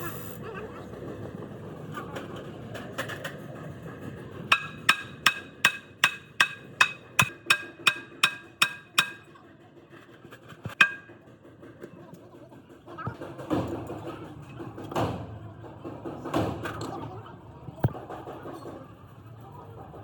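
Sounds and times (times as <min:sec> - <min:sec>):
hammer striking metal: 0:04.5 - 0:09.3, 0:10.7 - 0:11.2.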